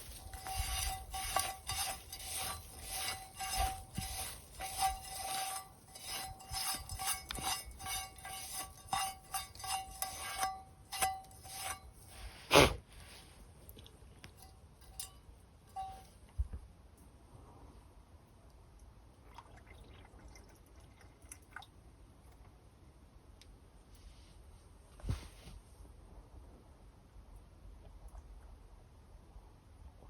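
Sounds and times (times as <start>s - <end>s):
metal utensil scraping a pan: 0.0s - 12.4s, 14.8s - 16.1s.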